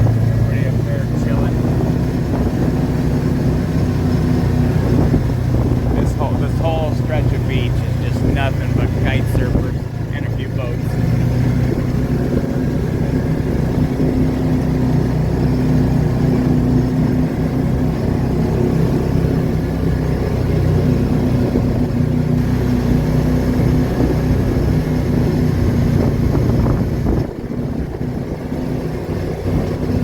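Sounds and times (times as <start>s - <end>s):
car engine hum: 0.0s - 30.0s
wind noise: 1.3s - 2.8s, 4.6s - 7.1s, 25.6s - 30.0s.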